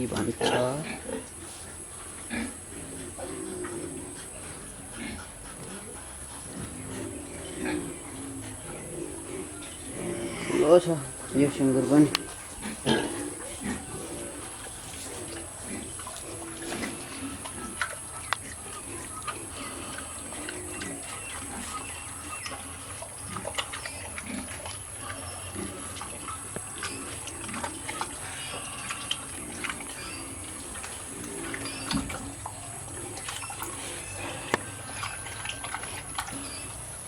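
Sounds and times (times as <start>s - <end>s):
pigs grunting: 0.0s - 37.0s.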